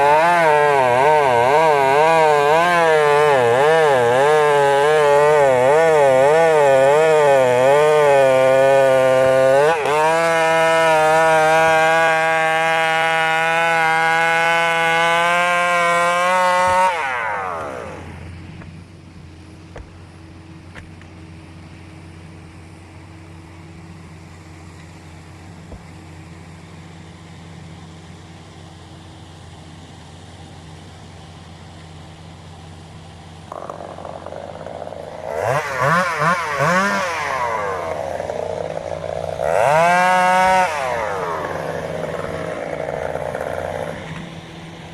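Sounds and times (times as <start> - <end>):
chainsaw cutting wood: 0.0 - 18.8, 19.5 - 21.2, 33.3 - 44.9
chainsaw idling: 0.0 - 44.9.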